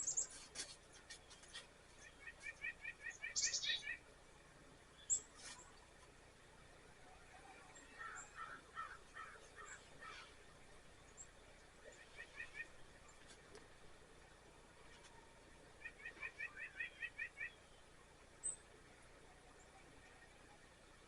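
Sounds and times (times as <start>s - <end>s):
bird chirps: 2.0s - 4.0s
birds cawing: 8.0s - 10.4s.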